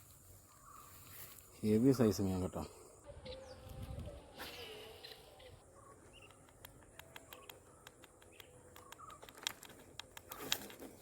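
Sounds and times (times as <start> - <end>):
faint bird chirps: 0.2 - 1.5, 2.8 - 9.6
small irregular clicks: 6.2 - 11.0.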